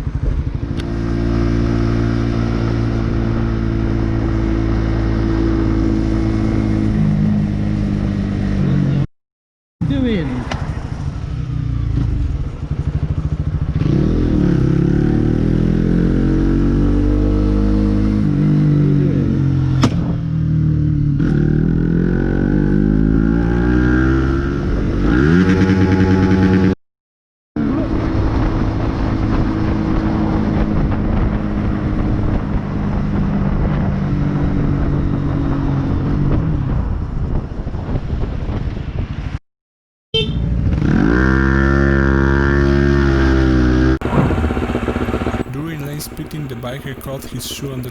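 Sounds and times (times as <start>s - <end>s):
motorcycle engine accelerating: 0.0s - 9.1s, 9.8s - 26.8s, 27.6s - 39.4s, 40.2s - 47.9s
road noise rushing: 9.8s - 20.6s, 40.4s - 47.9s.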